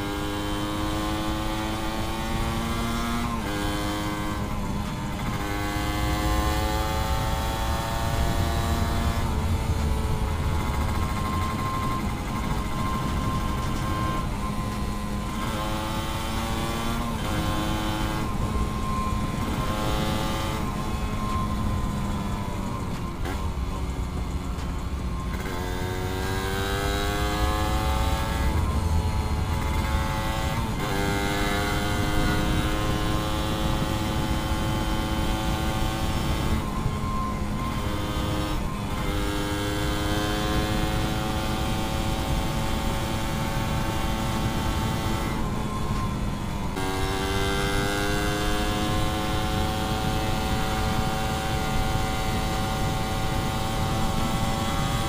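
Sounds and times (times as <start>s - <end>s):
two-stroke motorcycle engine revving: 0.0s - 23.5s, 25.2s - 55.0s
wind noise: 2.9s - 55.0s.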